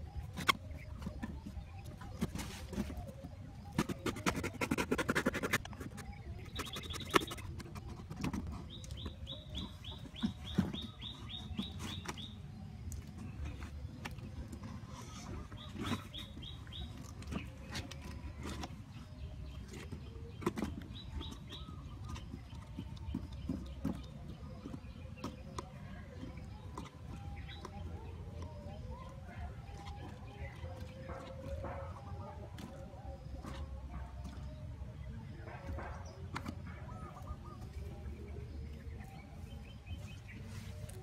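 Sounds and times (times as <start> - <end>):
small bird chirping: 0.0 - 13.9.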